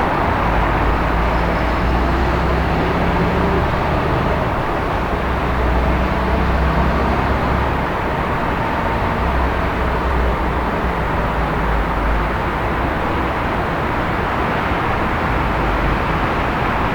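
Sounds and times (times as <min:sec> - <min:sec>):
road traffic rumble: 0:00.0 - 0:16.9.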